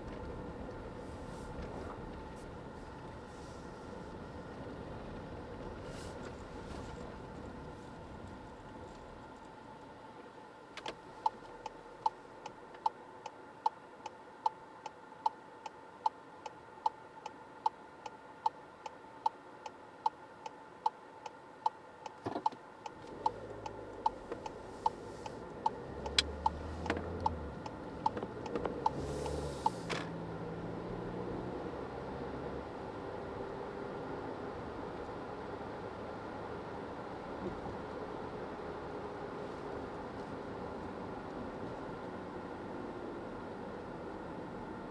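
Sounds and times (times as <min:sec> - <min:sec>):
low car noise: 0:00.0 - 0:13.1, 0:22.1 - 0:44.9
turn signal ticking: 0:10.7 - 0:44.9.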